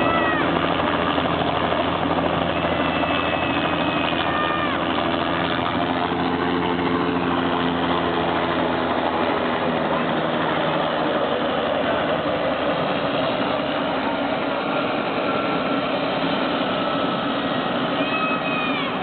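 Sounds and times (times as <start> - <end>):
helicopter engine and rotor: 0.0 - 19.0.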